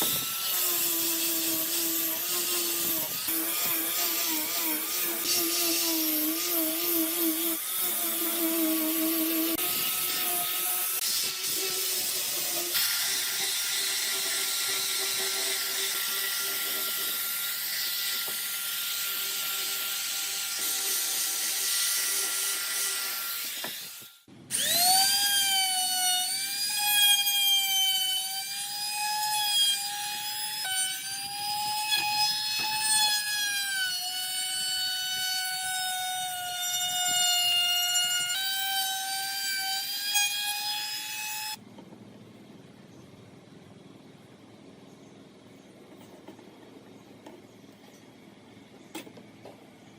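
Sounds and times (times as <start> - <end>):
power tool cutting wood: 0.0 - 41.6.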